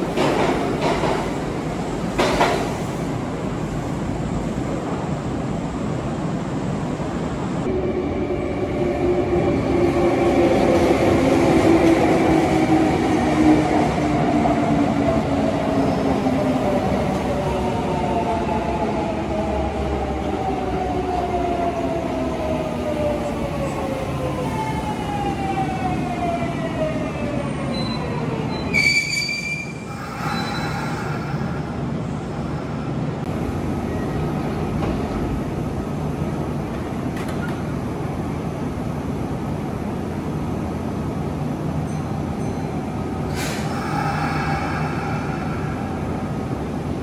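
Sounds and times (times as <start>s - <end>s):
standing train rumble and hum: 0.0s - 28.6s, 29.7s - 47.0s
high brake squeal: 27.8s - 31.2s.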